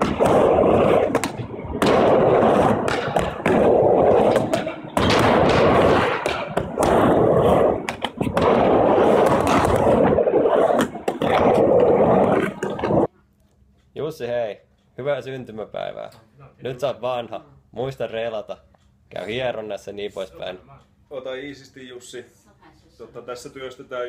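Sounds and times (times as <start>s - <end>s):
skateboard clicks and knocks: 0.0s - 13.1s
skateboard wheels rolling on wooden ramp: 0.0s - 13.1s.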